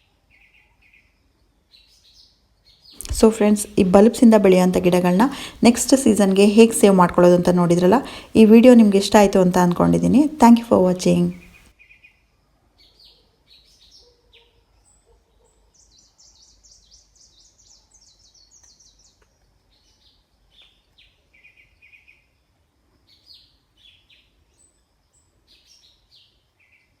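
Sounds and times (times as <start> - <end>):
small birds chirping and trilling: 12.8 - 22.3.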